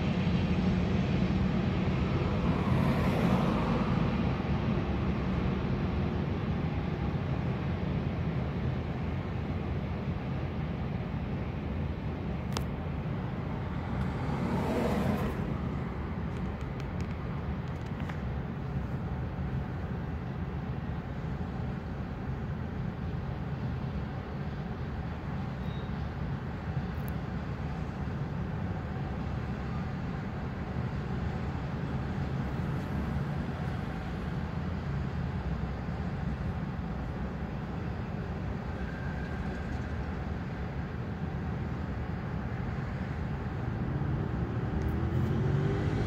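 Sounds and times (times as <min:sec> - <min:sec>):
freight cars rumbling over bridge: 0:00.0 - 0:46.0
road traffic: 0:00.0 - 0:46.0
car passing: 0:01.9 - 0:04.6, 0:13.2 - 0:16.4, 0:43.5 - 0:46.0
brief squeak: 0:25.6 - 0:26.0.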